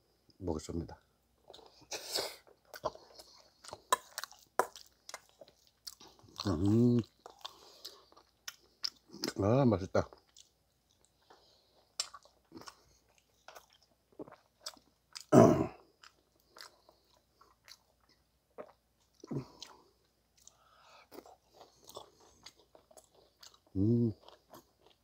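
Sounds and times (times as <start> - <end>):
man chewing: 1.4 - 9.3, 10.1 - 25.0.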